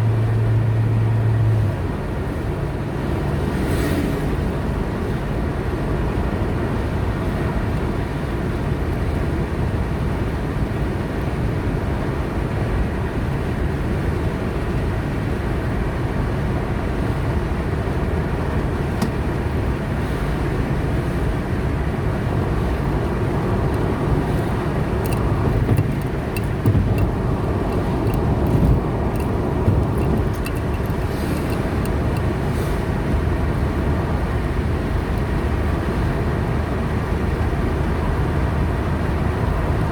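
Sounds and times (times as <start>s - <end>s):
car engine and tyre rumble: 0.0s - 39.9s
faint ticks: 25.0s - 32.3s.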